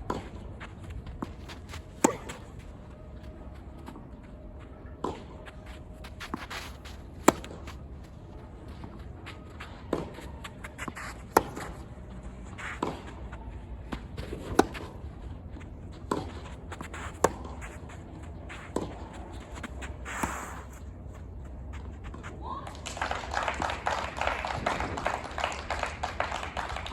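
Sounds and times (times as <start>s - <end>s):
tennis balls struck with rackets: 0.0s - 2.8s, 6.0s - 20.7s
footsteps on court: 0.0s - 23.0s
ball bouncing: 1.1s - 2.7s, 5.0s - 8.1s, 9.9s - 11.8s.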